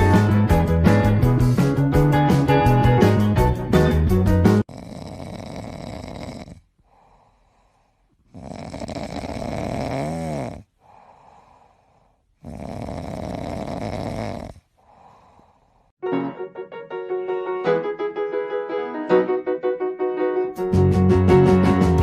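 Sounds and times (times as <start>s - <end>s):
pet snoring: 4.6s - 15.7s.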